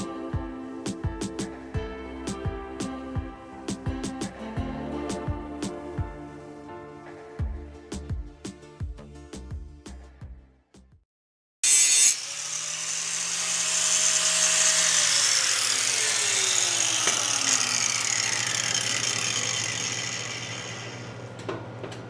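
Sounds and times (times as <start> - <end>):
grinder wheel hissing on metal: 11.6 - 21.4.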